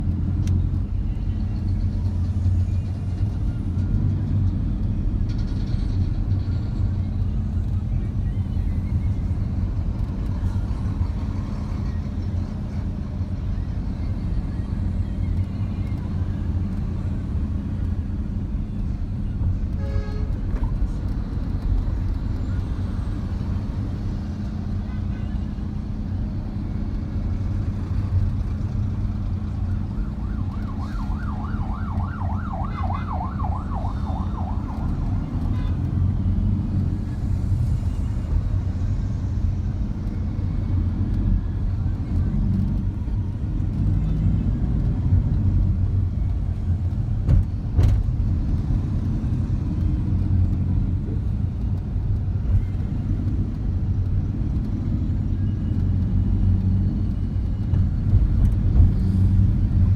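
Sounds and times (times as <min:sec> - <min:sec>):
traffic rumble: 0:00.0 - 0:59.9
siren yelping: 0:30.4 - 0:35.0.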